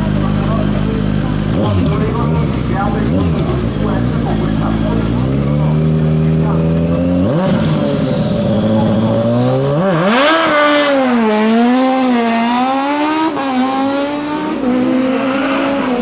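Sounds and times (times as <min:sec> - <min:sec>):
racing car engine accelerating: 0:00.0 - 0:16.0.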